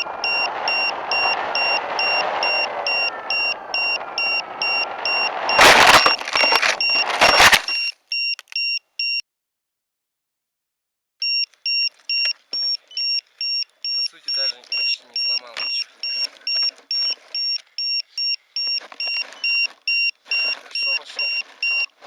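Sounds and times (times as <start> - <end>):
loud rushing noise: 0.0 - 7.8
high electronic warning beeps: 0.0 - 9.2, 11.2 - 22.0.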